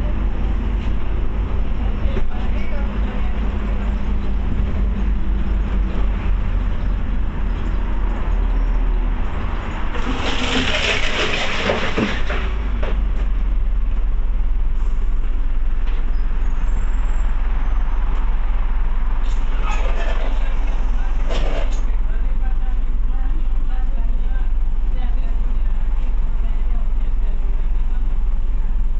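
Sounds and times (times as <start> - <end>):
bus engine rumble: 0.0 - 28.9.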